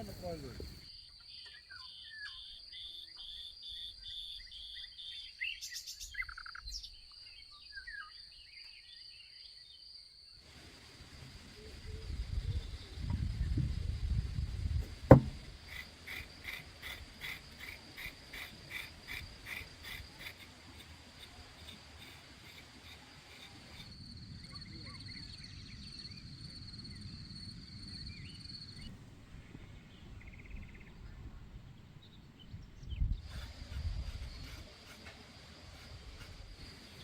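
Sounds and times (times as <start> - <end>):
sharp knock: 15.1 - 15.5.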